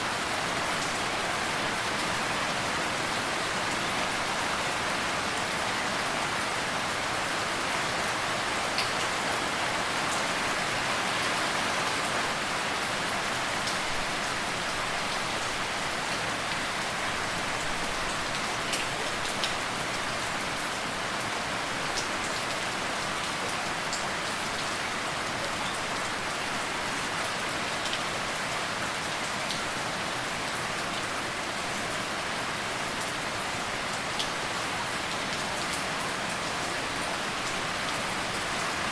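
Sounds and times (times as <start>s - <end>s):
steady rain hiss: 0.0s - 38.9s
raindrops ticking on a surface: 8.1s - 9.5s, 17.5s - 20.4s.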